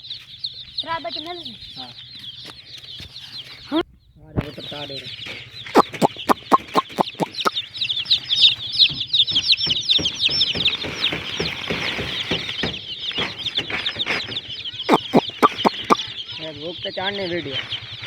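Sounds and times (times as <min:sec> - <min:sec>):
chicks peeping: 0:05.8 - 0:07.5, 0:14.9 - 0:16.0.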